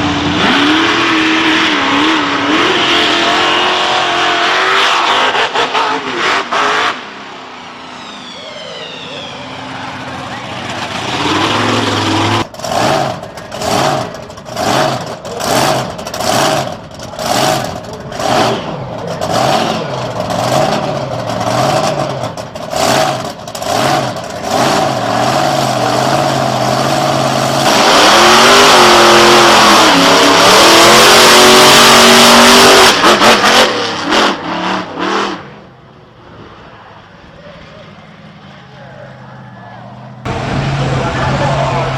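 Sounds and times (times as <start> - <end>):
truck engine revving: 0.0 - 41.9.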